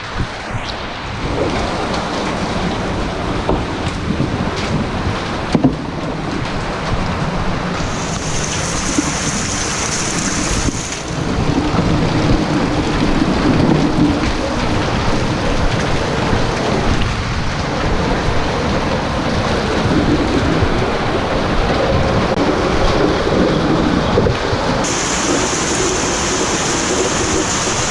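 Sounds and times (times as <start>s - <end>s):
heavy rain pouring: 0.0s - 27.9s
high hiss: 7.8s - 11.2s, 24.8s - 27.9s.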